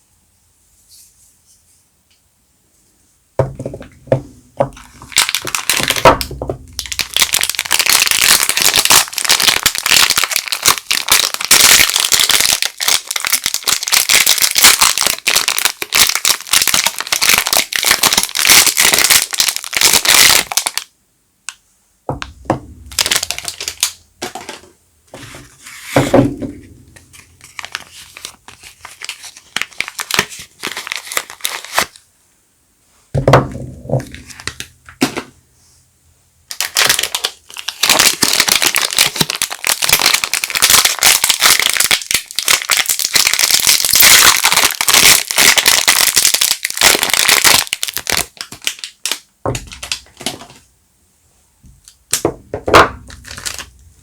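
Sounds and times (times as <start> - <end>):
handling knocks: 3.4 - 4.8, 22.1 - 23.0, 33.2 - 34.3
wrapping crinkling and tearing: 4.8 - 20.9, 22.9 - 24.6, 27.0 - 32.0, 36.5 - 50.6, 52.8 - 54.0.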